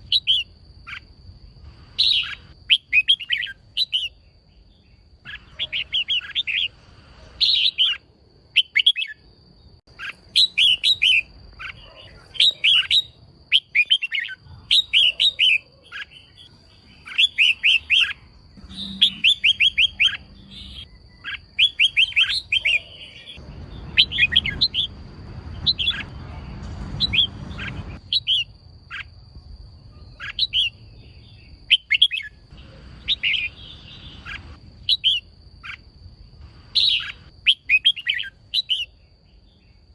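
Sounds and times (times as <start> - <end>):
bird high chirping: 0.0 - 35.9, 36.5 - 39.9.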